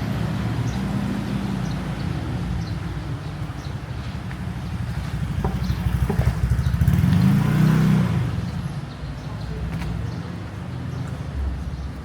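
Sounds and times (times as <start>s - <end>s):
street noise: 0.0s - 12.0s
vehicle engine passing by: 5.7s - 8.6s.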